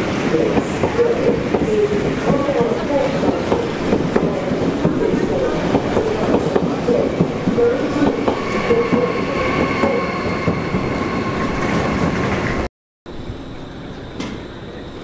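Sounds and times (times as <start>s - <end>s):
train whine: 0.0s - 15.0s.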